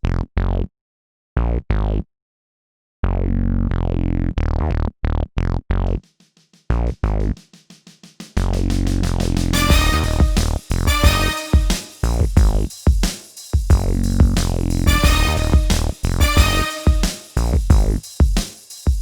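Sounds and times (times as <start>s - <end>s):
quick short synth notes: 9.6s - 11.8s, 14.9s - 17.2s
synthesizer chord stabs: 9.6s - 12.0s, 14.9s - 17.4s.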